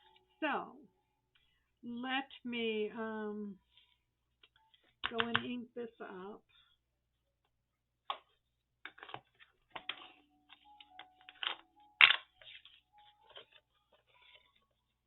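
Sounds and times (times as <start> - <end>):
paper rustling: 8.9 - 15.0.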